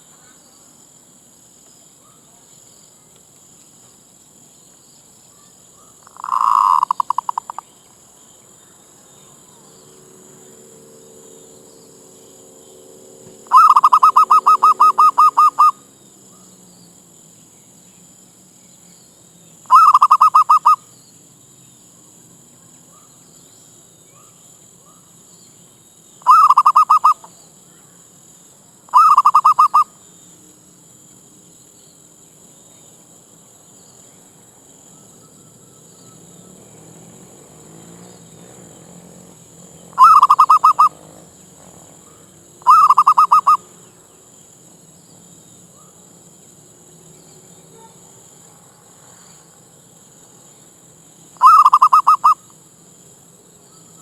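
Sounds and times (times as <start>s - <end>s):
dove cooing: 6.0s - 7.6s, 13.2s - 15.8s, 19.7s - 20.8s, 26.3s - 27.3s, 28.9s - 29.9s, 35.2s - 44.0s, 51.4s - 52.5s.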